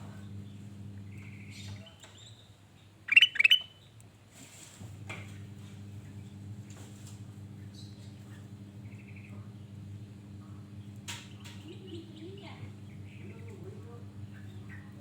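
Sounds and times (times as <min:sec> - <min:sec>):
steady low hum: 0:00.0 - 0:01.8, 0:04.9 - 0:15.0
bulbul calling: 0:03.1 - 0:03.8
fainter bird chirps: 0:03.1 - 0:03.9.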